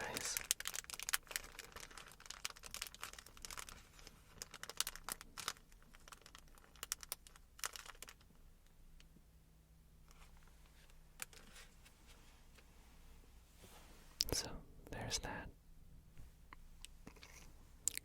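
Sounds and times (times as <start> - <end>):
plastic glove crinkling: 0.0 - 8.4, 10.1 - 12.2.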